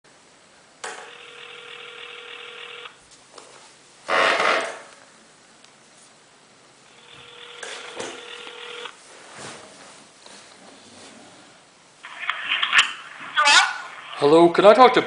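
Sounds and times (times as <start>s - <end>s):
telephone ringback tone: 1.0s - 3.0s, 6.9s - 9.0s.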